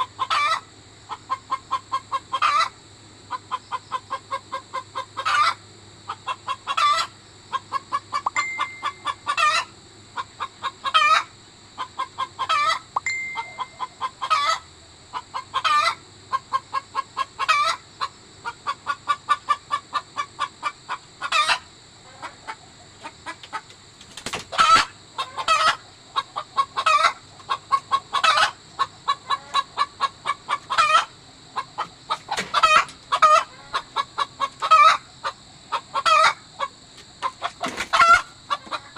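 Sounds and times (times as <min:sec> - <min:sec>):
hen cackling: 0:00.0 - 0:38.9.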